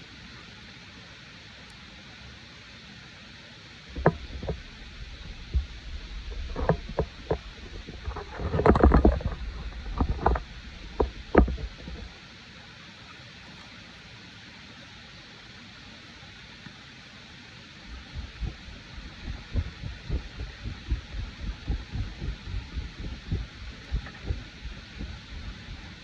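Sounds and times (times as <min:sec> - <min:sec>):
low rumble: 0:03.9 - 0:12.1, 0:17.9 - 0:26.0
knocks and thumps: 0:04.0 - 0:04.6, 0:05.2 - 0:12.1, 0:18.0 - 0:26.0.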